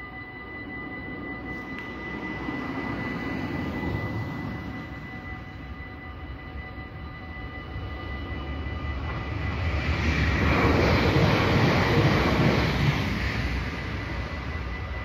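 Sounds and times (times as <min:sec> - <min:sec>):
electric train passing: 0:00.0 - 0:15.0
level-crossing warning bells: 0:00.0 - 0:15.0.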